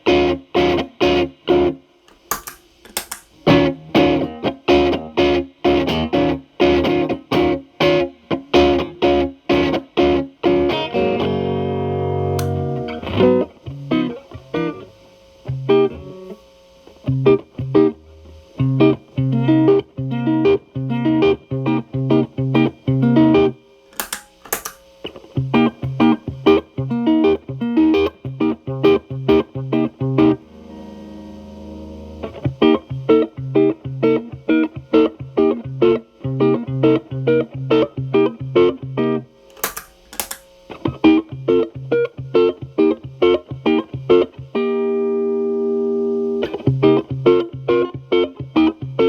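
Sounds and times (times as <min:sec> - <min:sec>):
distorted electric guitar chords: 0:02.2 - 0:23.1, 0:24.0 - 0:37.3.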